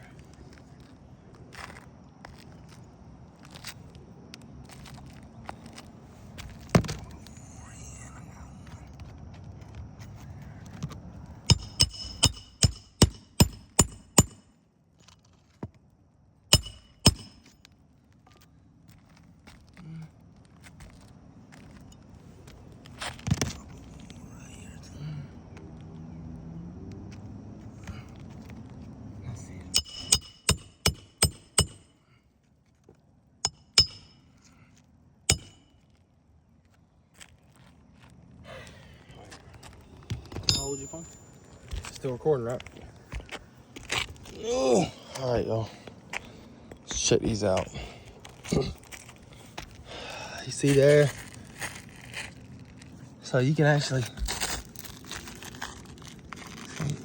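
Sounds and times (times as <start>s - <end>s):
hammer striking roof: 11.5s - 14.4s, 16.5s - 17.5s, 29.8s - 31.8s
sharp metallic clinks: 11.5s - 14.5s, 16.5s - 17.6s, 29.7s - 32.0s, 33.4s - 34.4s, 35.3s - 35.8s, 40.3s - 41.7s.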